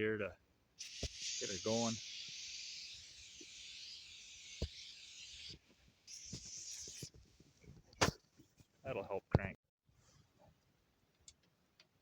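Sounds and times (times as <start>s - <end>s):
aerosol spray hissing: 0.8s - 7.3s.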